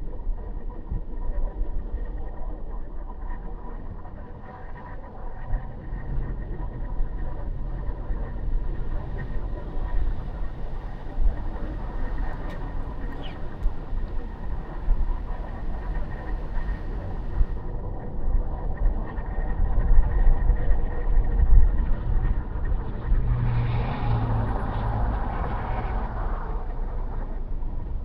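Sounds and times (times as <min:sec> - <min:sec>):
car road and engine rumble: 0:00.2 - 0:18.5, 0:21.1 - 0:28.0
faint clicks: 0:10.9 - 0:17.5.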